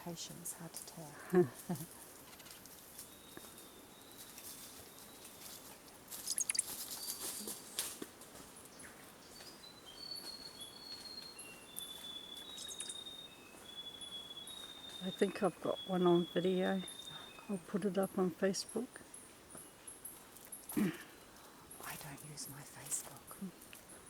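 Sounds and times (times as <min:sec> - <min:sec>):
high whistled bird calls: 0:06.2 - 0:07.3, 0:09.4 - 0:17.5
sharp clicks: 0:06.3 - 0:06.7.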